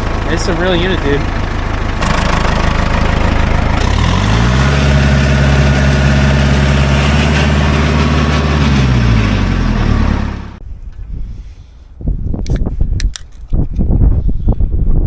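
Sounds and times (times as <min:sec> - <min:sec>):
tractor engine running: 0:00.0 - 0:11.1.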